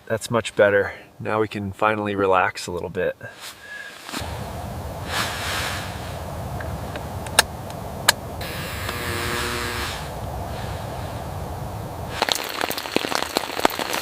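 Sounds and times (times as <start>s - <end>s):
fire hissing: 3.4s - 14.0s
campfire crackling: 4.1s - 14.0s
low rumble: 4.2s - 12.2s
fire popping: 10.1s - 14.0s.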